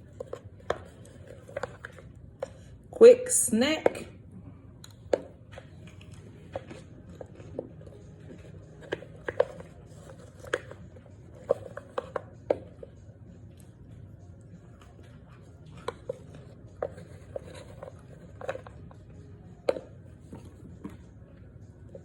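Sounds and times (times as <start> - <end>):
person chewing crunchy starch: 4.8 - 12.5.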